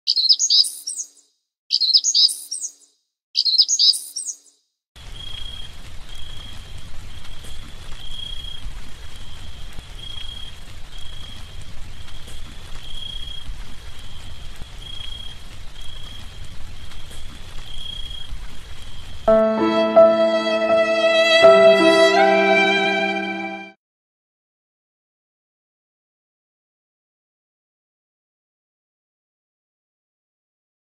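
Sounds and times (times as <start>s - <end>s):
bird chirping call: 0.1s - 4.6s
steady outdoor hiss: 5.0s - 20.0s
high thin repeating note: 19.3s - 23.7s.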